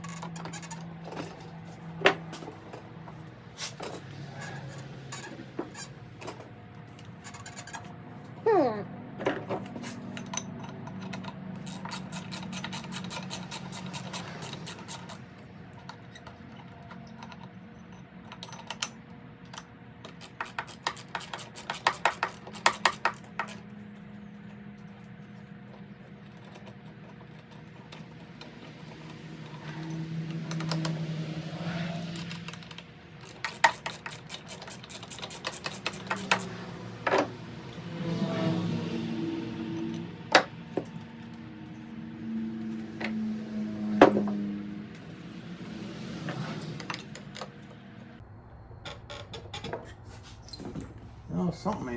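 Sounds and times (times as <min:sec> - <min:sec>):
hand tools clicking against metal: 0:09.6 - 0:23.7, 0:26.2 - 0:31.0, 0:31.9 - 0:37.9.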